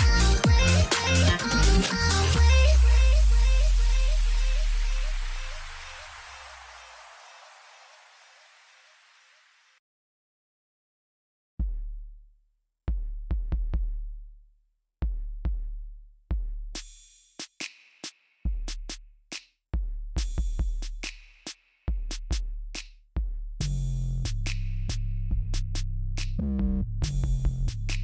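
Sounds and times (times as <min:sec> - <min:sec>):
electronic music with drum machine: 0:00.0 - 0:07.8.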